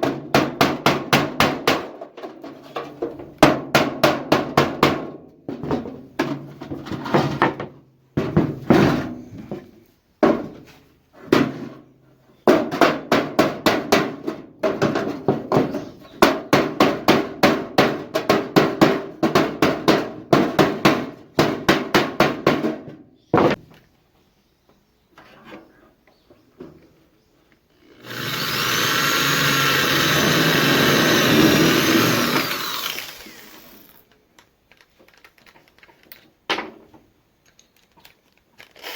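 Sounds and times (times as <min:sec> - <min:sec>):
power tool whining: 0:27.7 - 0:34.0.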